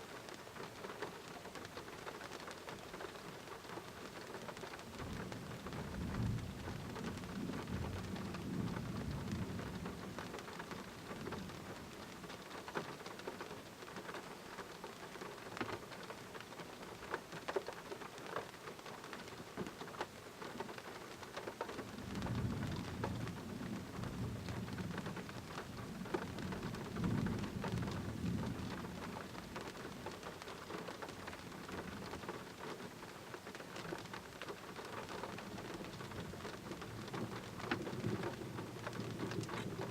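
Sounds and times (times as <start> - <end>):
heavy rain: 0.0 - 39.9
low thunder rumbling: 5.0 - 10.2, 22.0 - 29.9, 35.4 - 39.9.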